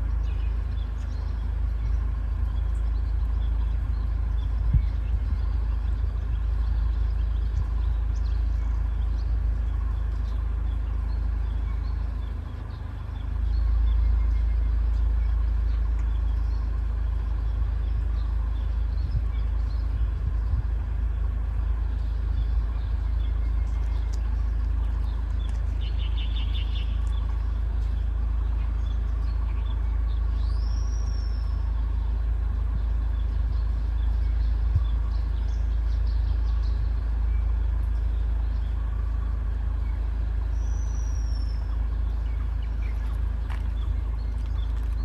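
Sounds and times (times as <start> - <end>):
birds calling: 0.0 - 45.0
steady low rumble: 0.0 - 45.0
high upward whistled bird calls: 21.9 - 32.2, 32.8 - 45.0.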